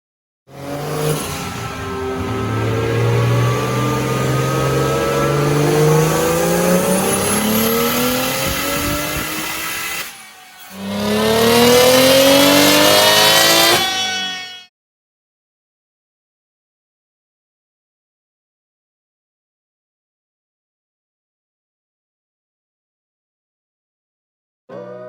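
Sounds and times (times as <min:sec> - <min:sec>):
car engine accelerating hard: 0:00.5 - 0:10.1, 0:10.8 - 0:14.5.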